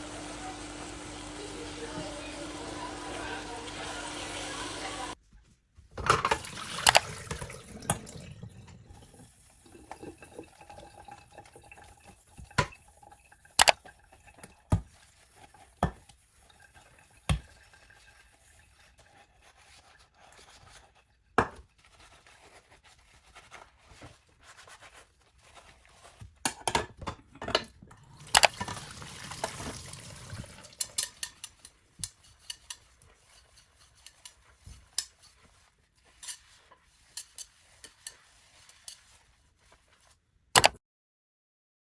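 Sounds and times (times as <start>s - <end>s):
water running: 0.0s - 5.2s, 6.0s - 26.2s, 27.2s - 40.2s.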